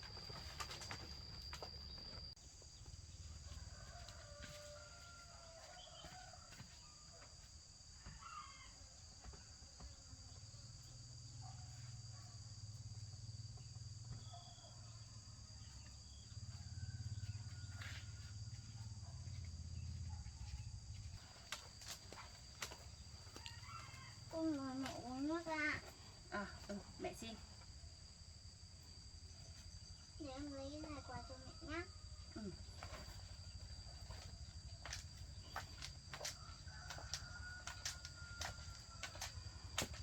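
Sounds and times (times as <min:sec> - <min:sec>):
rooster crowing: 0:03.4 - 0:07.2, 0:08.0 - 0:09.0, 0:23.2 - 0:24.5, 0:36.1 - 0:39.8.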